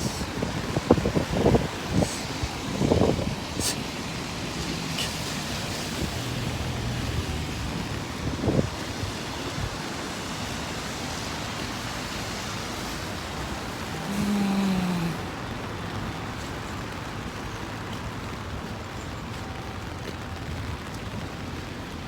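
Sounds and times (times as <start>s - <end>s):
passing vehicles hissing: 0.0s - 17.0s
rain: 0.0s - 22.0s
wind: 0.0s - 22.0s.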